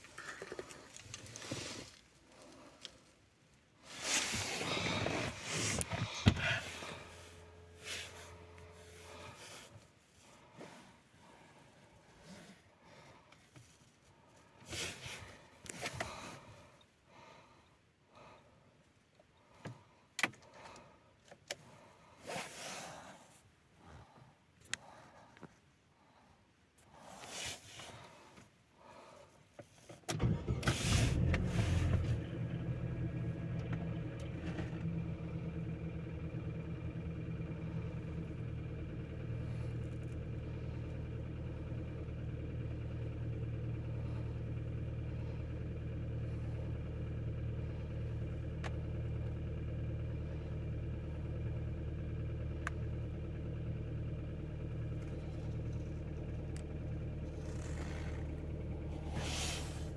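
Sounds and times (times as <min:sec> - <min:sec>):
car engine starting and idling: 0:00.1 - 0:12.6, 0:29.9 - 0:59.9.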